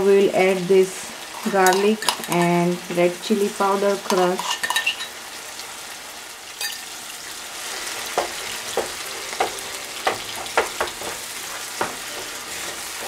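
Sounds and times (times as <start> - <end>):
food sizzling in oil: 0.0 - 13.0
spatula knocking and scraping pan: 1.4 - 2.5, 4.1 - 5.1, 7.9 - 13.0.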